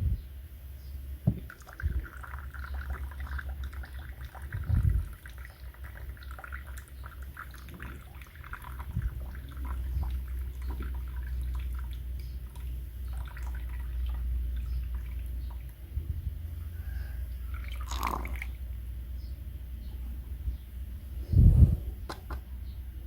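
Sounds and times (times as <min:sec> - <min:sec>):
steady low hum: 0:00.0 - 0:23.0
loud thump: 0:01.3 - 0:01.5.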